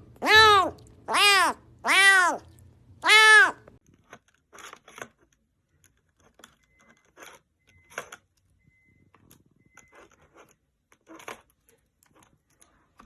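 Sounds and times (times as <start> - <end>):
cat meowing: 0.2 - 3.7
faint crunching and clicking: 3.7 - 13.0.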